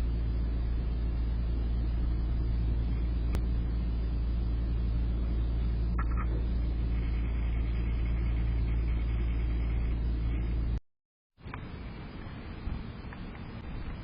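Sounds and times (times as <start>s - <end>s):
low rumble: 0.0s - 10.8s.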